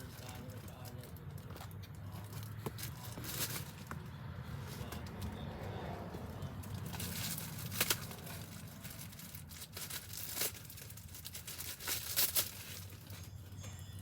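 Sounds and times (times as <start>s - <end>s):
packaging crinkling and rustling: 6.6s - 13.6s.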